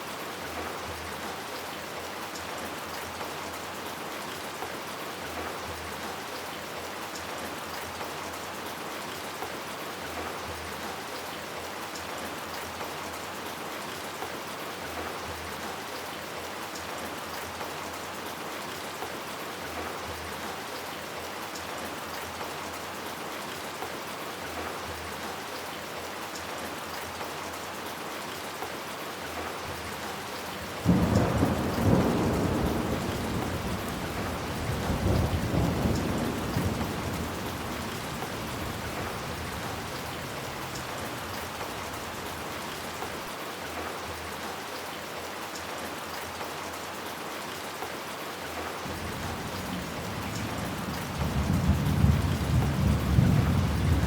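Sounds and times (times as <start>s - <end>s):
heavy rain on hard surfaces: 0.0s - 54.0s
thunderclap rumbling: 30.8s - 40.0s, 48.9s - 54.0s.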